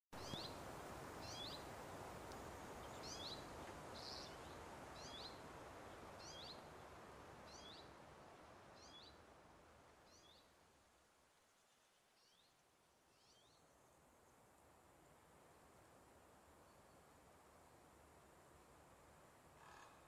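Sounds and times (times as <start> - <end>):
faint outdoor hiss: 0.2 - 20.0
small bird calling: 19.6 - 20.0.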